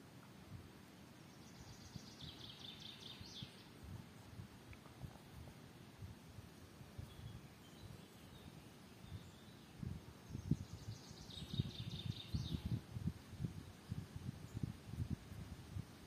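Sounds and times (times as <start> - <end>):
faint high bird chirps: 1.3 - 3.8, 7.0 - 12.8
songbird trilling: 10.3 - 12.8.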